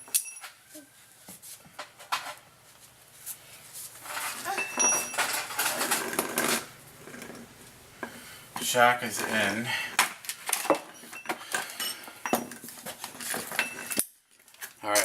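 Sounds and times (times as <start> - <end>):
metal tools clinking and rattling: 0.0 - 0.6, 4.0 - 7.3, 10.3 - 15.0.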